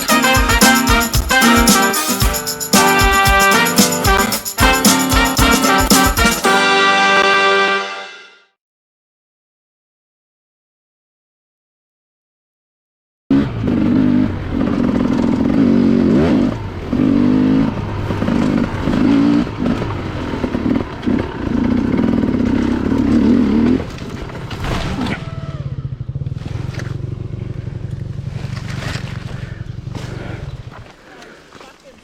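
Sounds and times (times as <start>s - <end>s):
dirt bike engine revving: 0.0s - 6.9s, 13.3s - 30.8s
knocks and scrapes: 28.3s - 30.2s.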